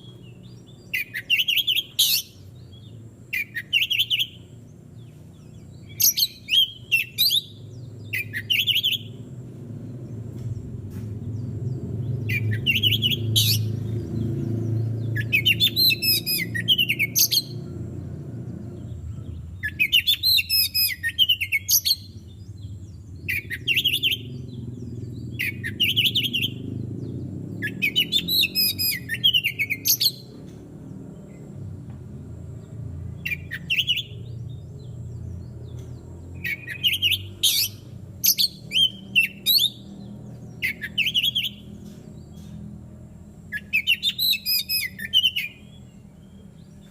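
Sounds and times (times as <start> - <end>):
bird singing whistles and chatter: 0.0 - 4.5, 5.4 - 9.3, 12.0 - 17.7, 19.1 - 26.8, 27.5 - 30.4, 33.2 - 42.5, 43.5 - 46.9
steady low hum: 0.0 - 46.9.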